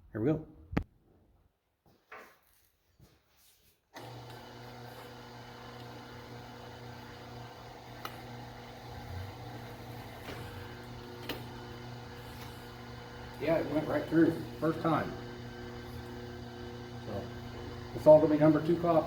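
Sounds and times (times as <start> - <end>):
wire stripping machine humming: 4.0 - 19.0.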